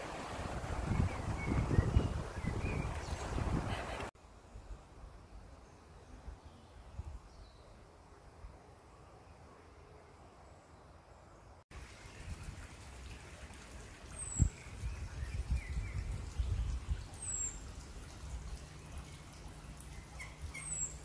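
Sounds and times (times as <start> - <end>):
wind rumble on microphone: 0.0 - 4.8, 14.2 - 18.6.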